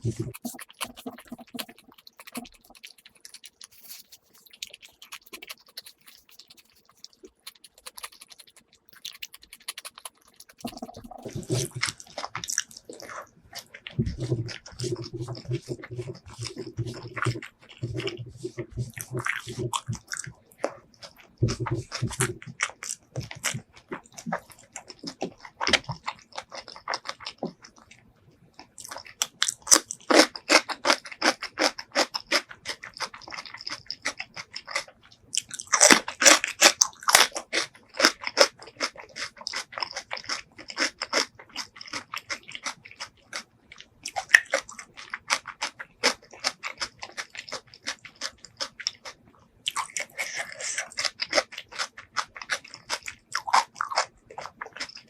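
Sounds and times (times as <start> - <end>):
crunchy bites: 0.0 - 27.9, 28.6 - 43.5
close chewing with wet mouth clicks: 0.0 - 55.0.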